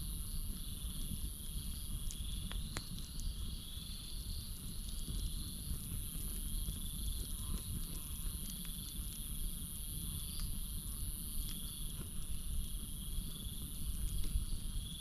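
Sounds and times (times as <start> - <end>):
campfire crackling: 0.0 - 15.0
insects droning: 0.0 - 15.0.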